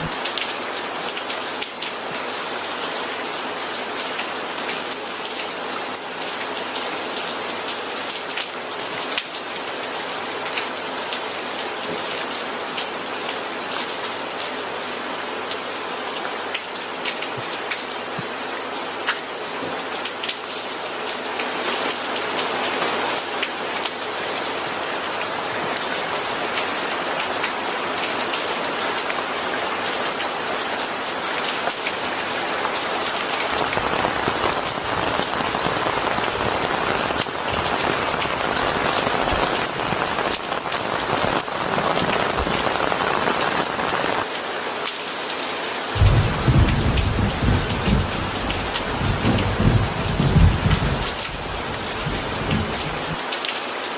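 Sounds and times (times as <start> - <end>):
steady rain: 0.0 - 53.9
deep thunder rumble: 46.0 - 53.2.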